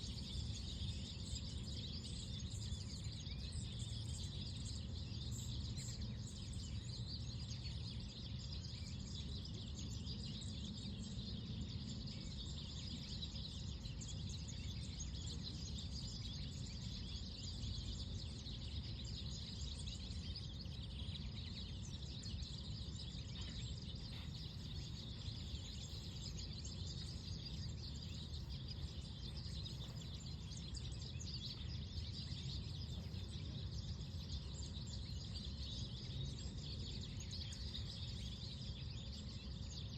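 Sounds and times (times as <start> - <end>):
small birds chirping: 0.0 - 39.9
steady low rumble: 21.8 - 36.4.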